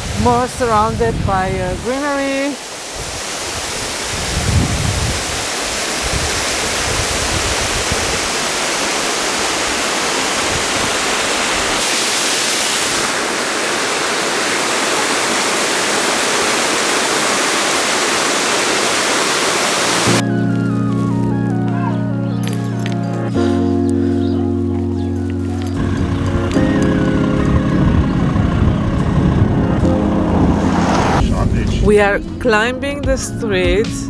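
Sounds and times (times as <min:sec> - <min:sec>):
waterfall rushing: 0:00.0 - 0:21.7, 0:25.4 - 0:31.7
low bumps: 0:20.1 - 0:34.0
music: 0:20.1 - 0:34.0.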